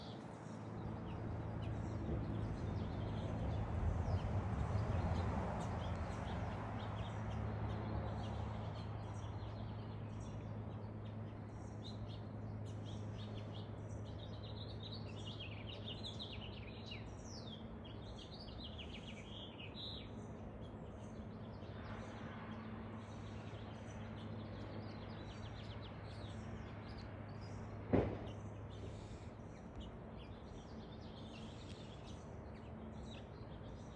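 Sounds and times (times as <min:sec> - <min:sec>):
birds chirping and singing: 0:05.1 - 0:33.9
sharp knock: 0:27.9 - 0:28.3.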